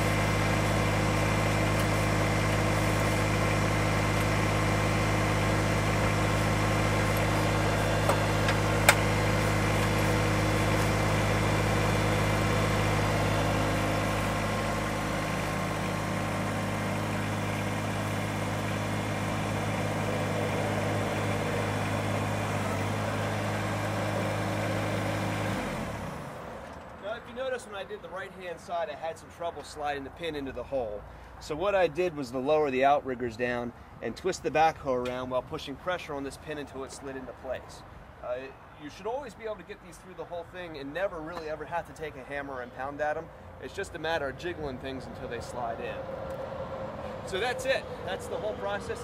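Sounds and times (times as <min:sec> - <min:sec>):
tractor diesel engine running: 0:00.0 - 0:32.0, 0:39.1 - 0:49.0.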